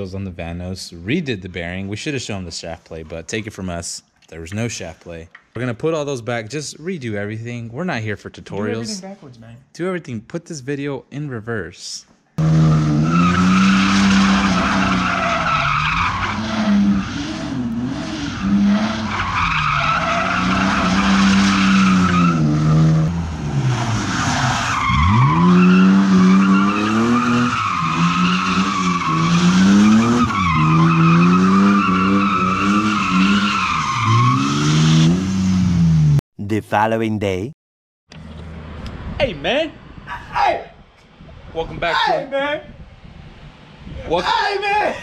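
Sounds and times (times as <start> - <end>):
car engine revving hard: 12.4 - 36.2.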